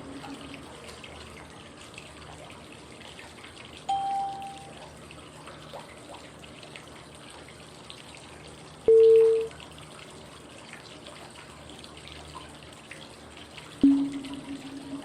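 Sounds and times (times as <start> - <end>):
running water white noise: 0.0 - 15.0
short clear cue tone: 3.9 - 4.7, 8.9 - 9.5, 13.8 - 15.0.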